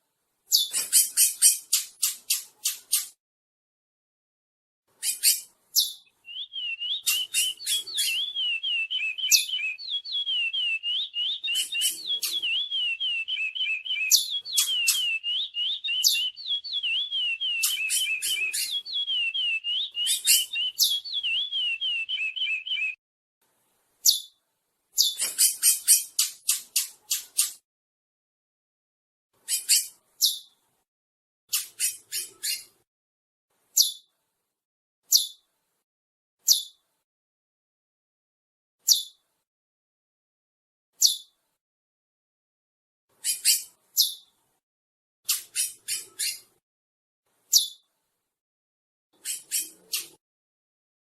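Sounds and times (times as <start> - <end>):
finch whistled song: 0.5 - 3.0, 5.0 - 23.0, 25.0 - 27.5, 43.2 - 44.2, 45.3 - 46.5, 49.2 - 50.2
sharp high bird chips: 6.6 - 22.9.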